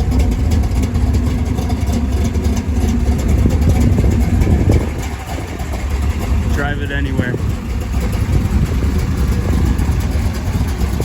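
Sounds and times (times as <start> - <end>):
car engine idling with deep rumble: 0.0 - 11.0.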